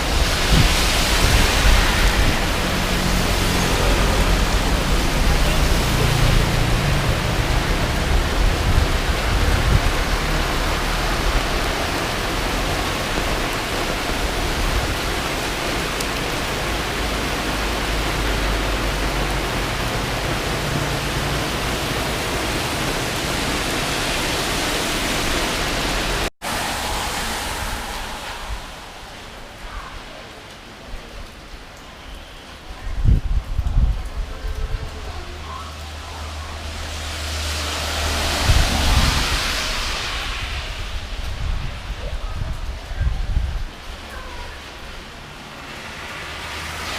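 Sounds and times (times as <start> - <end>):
wind buffeting microphone: 0.0 - 5.7, 6.4 - 15.3, 26.4 - 30.1, 32.7 - 35.2, 38.0 - 44.0
storm wind and rain: 0.0 - 46.9.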